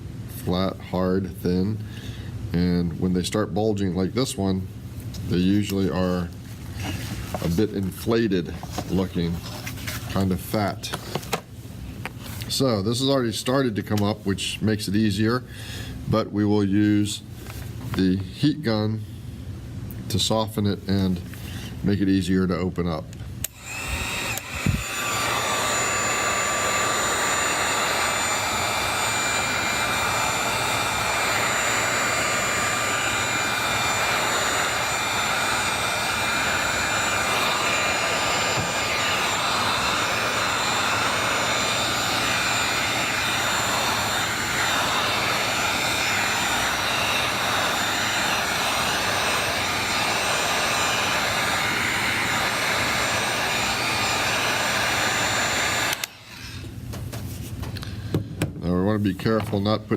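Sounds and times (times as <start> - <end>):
heat gun blowing with faint whine: 19.9 - 58.5.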